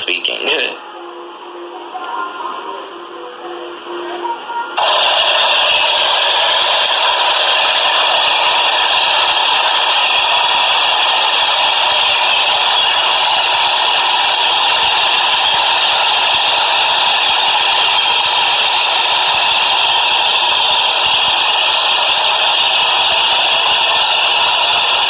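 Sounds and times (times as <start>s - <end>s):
subway train wheels rattling on rail: 4.8s - 25.0s.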